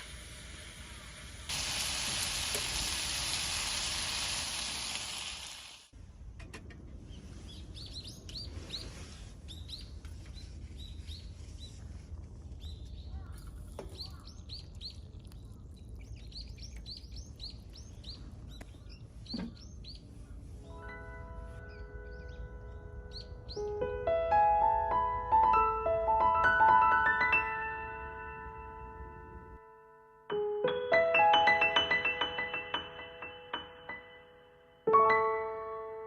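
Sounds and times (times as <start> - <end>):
food sizzling in a pan: 0.0 - 5.9
small birds chirping: 7.0 - 20.6.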